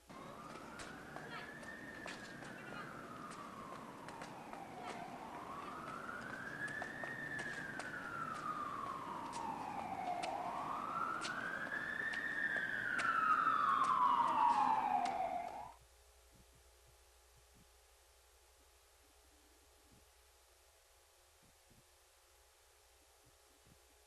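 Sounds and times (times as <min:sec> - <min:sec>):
siren wailing: 0:00.1 - 0:15.8.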